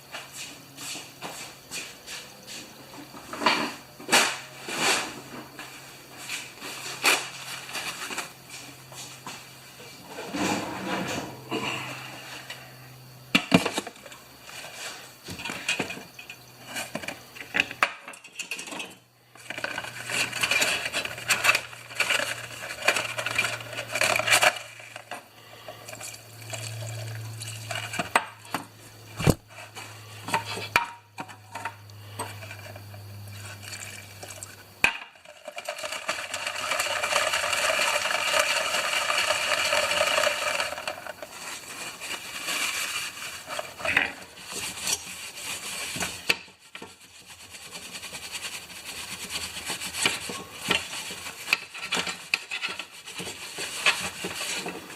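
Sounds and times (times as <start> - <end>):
metal clinks and scraping: 14.6 - 28.5, 35.0 - 45.1
steady rubbing noise: 19.4 - 26.2, 35.2 - 54.9.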